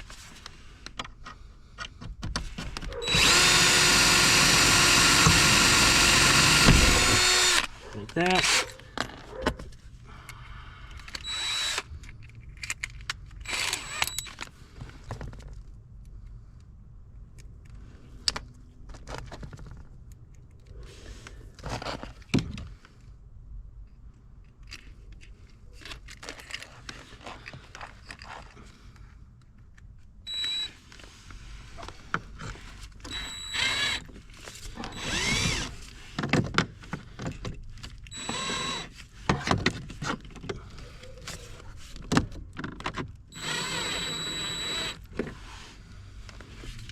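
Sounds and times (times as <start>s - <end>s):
power drill boring holes: 3.0s - 8.7s, 11.2s - 11.9s, 13.5s - 14.3s, 30.3s - 30.7s, 33.1s - 34.1s, 34.8s - 35.9s, 38.1s - 39.0s, 43.3s - 45.1s.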